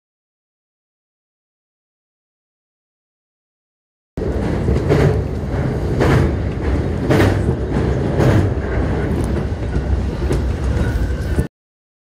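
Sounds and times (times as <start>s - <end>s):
train rumbling over a bridge: 4.2s - 11.5s.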